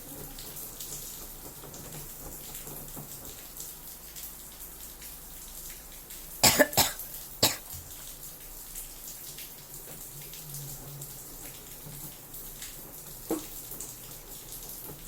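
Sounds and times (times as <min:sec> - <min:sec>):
washing machine running: 0:00.0 - 0:06.4, 0:07.0 - 0:15.0
person coughing: 0:06.4 - 0:07.9
water sloshing in drum: 0:06.5 - 0:08.2.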